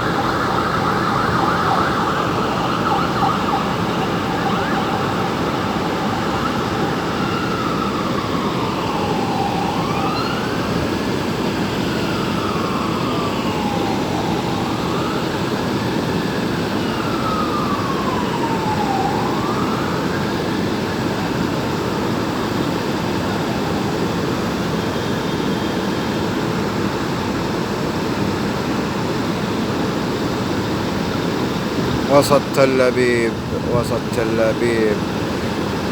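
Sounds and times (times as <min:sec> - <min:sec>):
city traffic noise: 0:00.0 - 0:35.9
emergency siren wailing: 0:00.0 - 0:35.9.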